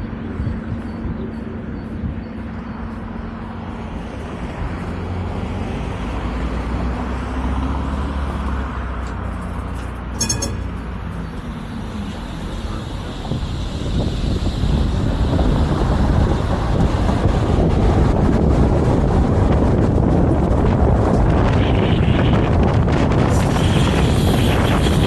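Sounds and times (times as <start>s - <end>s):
tram rumbling on track: 0.0s - 25.0s
brief high ringing: 10.2s - 11.3s.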